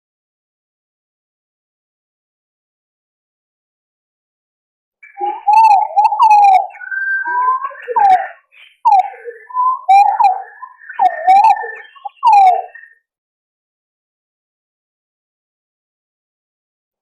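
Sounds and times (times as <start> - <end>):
pigeons whistling calls: 5.0 - 12.9.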